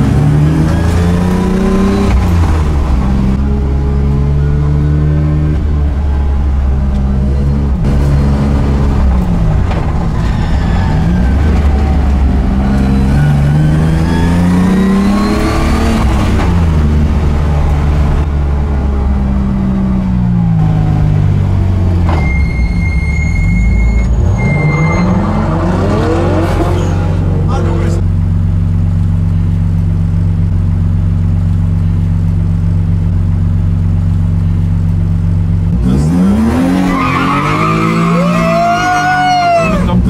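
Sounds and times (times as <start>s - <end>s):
car engine revving: 0.0s - 34.2s, 34.8s - 40.0s
high beep: 22.1s - 25.4s.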